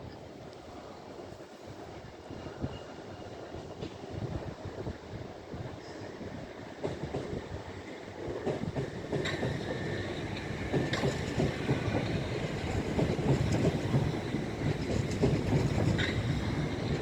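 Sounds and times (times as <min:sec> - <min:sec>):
train wheels clattering over rails: 0:05.8 - 0:17.0.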